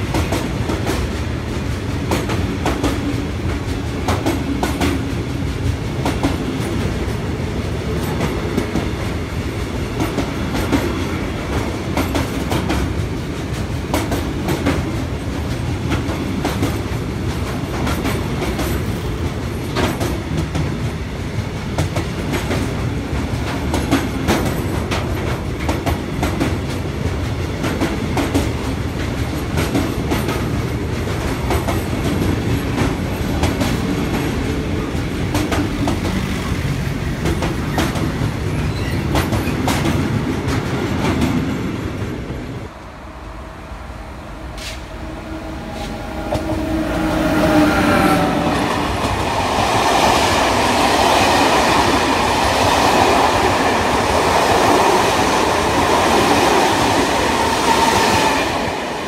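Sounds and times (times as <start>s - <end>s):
clicks from train wheels: 0.0s - 42.0s, 44.5s - 45.0s
rumble of wheels on rail: 0.0s - 59.0s.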